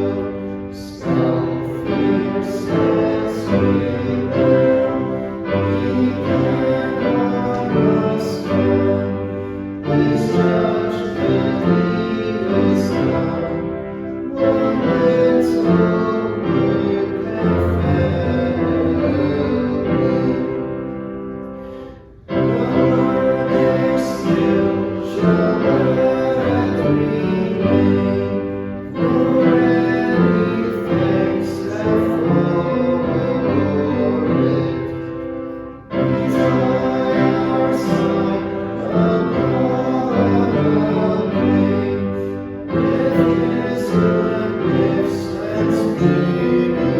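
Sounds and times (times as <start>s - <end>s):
group singing a hymn: 0.0s - 46.9s.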